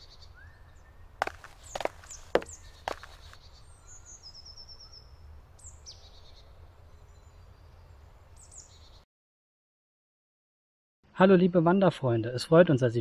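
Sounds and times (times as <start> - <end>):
songbirds chirping: 0.0 - 9.0.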